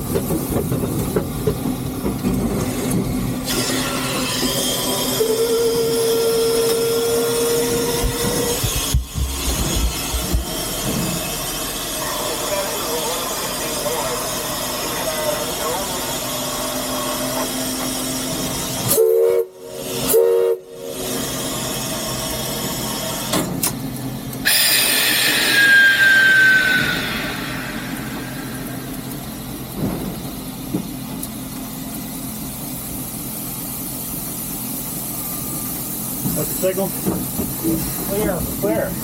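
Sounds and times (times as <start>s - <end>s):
rush of steam: 2.6s - 23.3s, 24.4s - 31.1s, 32.2s - 39.0s
steam hissing: 2.6s - 23.3s, 24.4s - 30.4s, 32.5s - 39.0s
steam whistle blasts: 3.5s - 8.7s, 18.8s - 21.3s, 24.4s - 28.7s.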